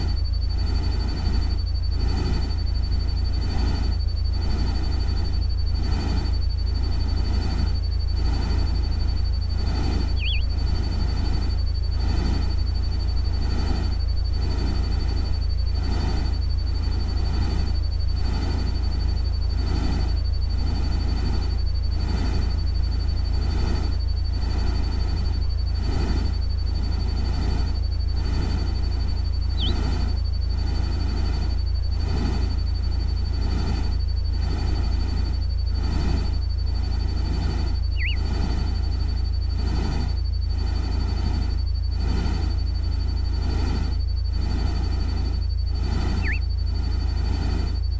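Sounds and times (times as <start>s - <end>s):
soft pulsing noise: 0.0s - 47.9s
high whine: 4.6s - 14.0s, 27.6s - 31.7s, 35.8s - 40.6s, 43.9s - 47.9s
bird-like chirp: 9.7s - 11.0s, 29.4s - 30.1s, 37.8s - 38.6s, 45.8s - 46.8s.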